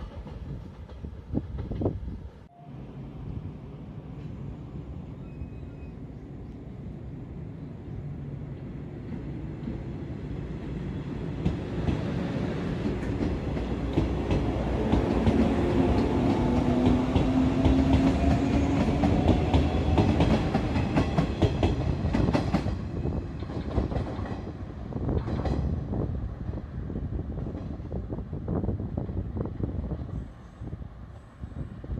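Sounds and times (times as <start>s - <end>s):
train wheels clickety-clack: 0.0s - 2.0s, 10.5s - 25.9s, 27.3s - 28.0s
train droning hum: 0.0s - 31.9s.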